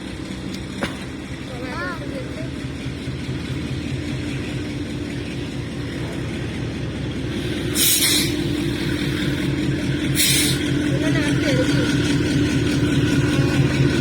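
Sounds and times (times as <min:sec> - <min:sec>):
train rumbling and humming: 0:00.0 - 0:14.0
short loud hisses: 0:07.8 - 0:08.5.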